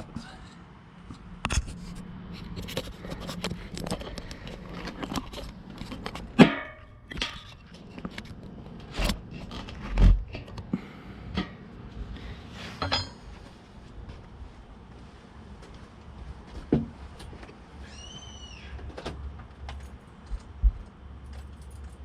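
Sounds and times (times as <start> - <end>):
short squeaks: 17.8 - 18.8.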